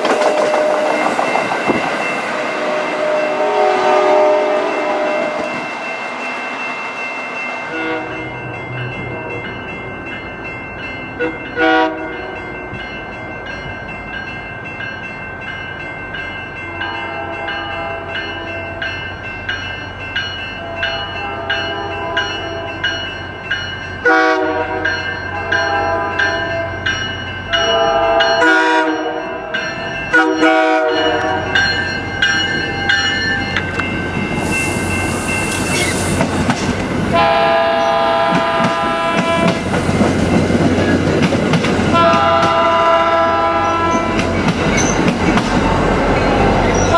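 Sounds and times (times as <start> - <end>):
rumble of moving trains: 0.0 - 46.9
locomotive horn blasts: 2.5 - 5.6, 7.6 - 8.3, 11.2 - 12.3, 24.0 - 26.8, 27.6 - 29.3, 30.1 - 31.6, 37.1 - 39.6, 41.9 - 44.1
high hiss: 34.3 - 36.5.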